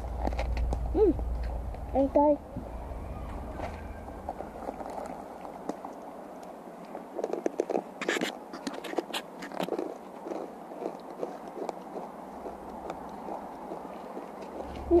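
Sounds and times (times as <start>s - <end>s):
person chewing crunchy food: 4.2s - 14.9s.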